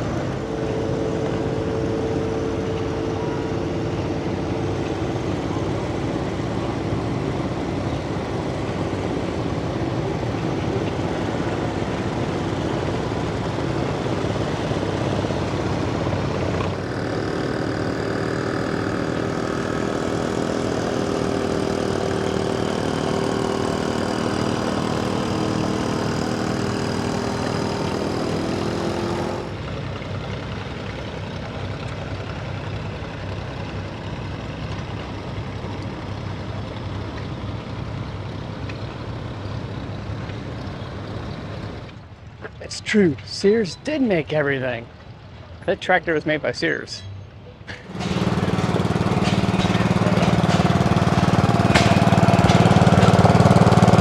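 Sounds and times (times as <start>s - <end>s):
droning tone: 0.0s - 14.2s
engine running: 0.0s - 54.0s.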